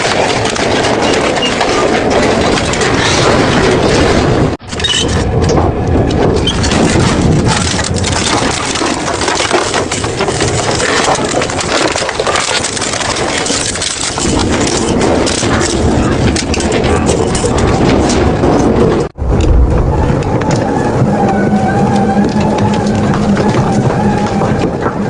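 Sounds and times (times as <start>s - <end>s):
shredder crushing metal: 0.0s - 5.2s, 6.4s - 18.9s.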